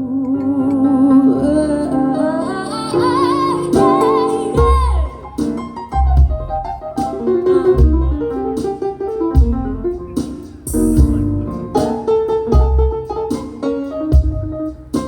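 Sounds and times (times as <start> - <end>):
jazz guitar lines: 0.0 - 15.0
low bass notes: 4.6 - 5.2, 5.9 - 7.0, 7.7 - 8.5, 9.4 - 13.2, 14.2 - 15.0.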